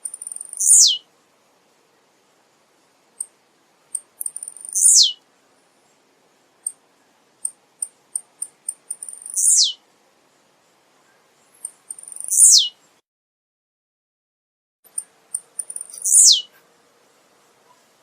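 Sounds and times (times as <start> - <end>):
bird song with buzzy note: 0.1 - 1.1, 4.0 - 5.2, 6.6 - 9.8, 10.4 - 13.0, 14.9 - 16.6.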